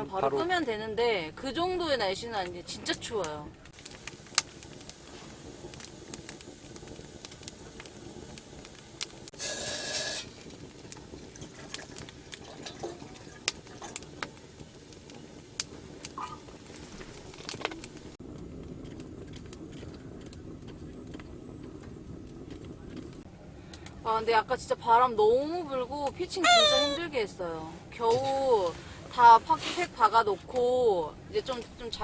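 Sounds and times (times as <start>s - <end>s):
firewood crackling in stove: 0.0s - 32.0s
short hiss: 9.4s - 10.4s.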